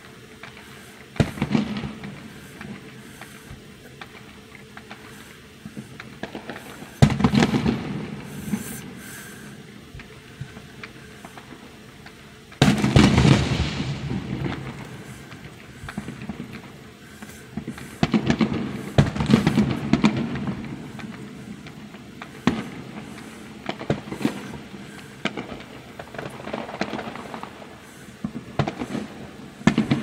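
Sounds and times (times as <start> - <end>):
fireworks booming: 0.0 - 30.0
fireworks crackling: 0.0 - 30.0
small pops: 0.4 - 13.4.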